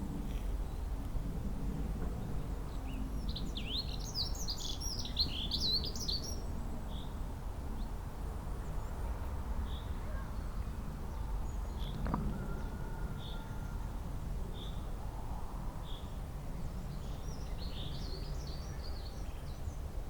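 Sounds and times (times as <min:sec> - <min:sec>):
songbird singing: 0:02.2 - 0:08.0, 0:08.6 - 0:15.0, 0:15.8 - 0:20.0.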